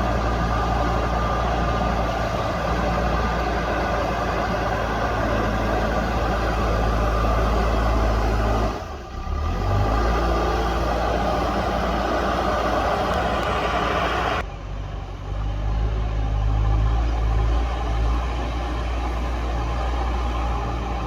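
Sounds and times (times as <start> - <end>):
diesel engine running hard: 0.0 - 21.0.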